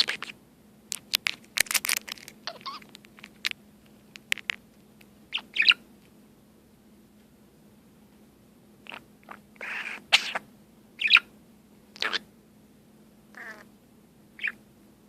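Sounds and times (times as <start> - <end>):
budgie warbling chirps: 0.0 - 0.4, 2.4 - 2.9, 5.3 - 5.8, 8.8 - 10.4, 11.0 - 11.3, 12.0 - 12.3, 13.3 - 13.7, 14.4 - 14.6.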